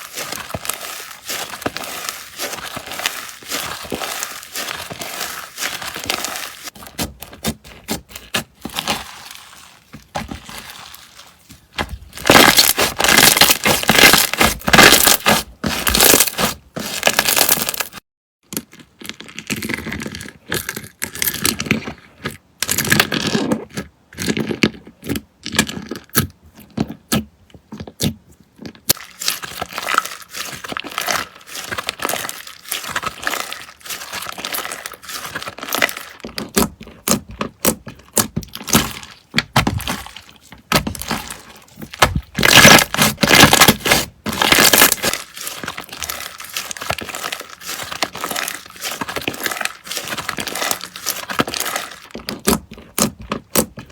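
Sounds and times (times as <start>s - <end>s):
slime squished by hand: 0.0s - 18.0s, 28.9s - 53.8s.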